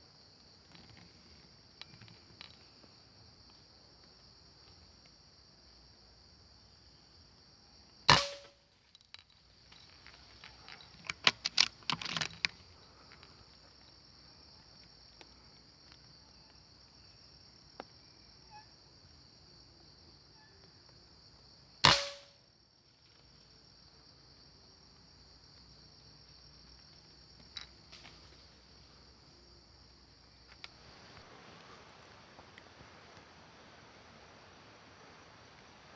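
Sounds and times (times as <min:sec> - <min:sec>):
high insect drone: 0:00.0 - 0:35.9
air rifle shots: 0:08.1 - 0:08.6, 0:21.8 - 0:22.3
small clicks and knocks: 0:08.8 - 0:13.4.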